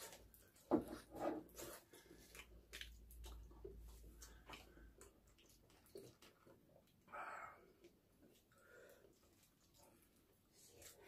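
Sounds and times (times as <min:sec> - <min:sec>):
chewing: 0:01.5 - 0:07.1.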